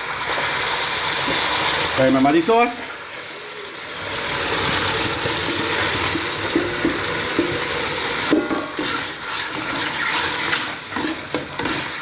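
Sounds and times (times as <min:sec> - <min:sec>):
food sizzling in a pot: 0:00.0 - 0:12.0
spoon scraping and clinking pot: 0:05.2 - 0:12.0.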